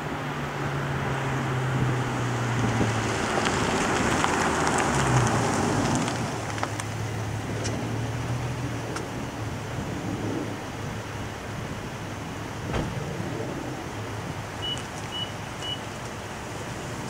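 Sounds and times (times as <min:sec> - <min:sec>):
road noise: 0:00.0 - 0:17.0
car driving past: 0:00.3 - 0:08.8.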